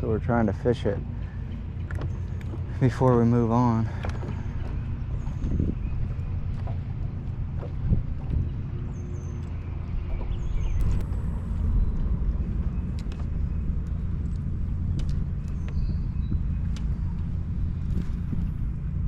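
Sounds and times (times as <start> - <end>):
boat engine rumble: 0.0 - 19.0
light clicks and taps: 1.6 - 4.8, 12.9 - 15.8, 16.6 - 17.3.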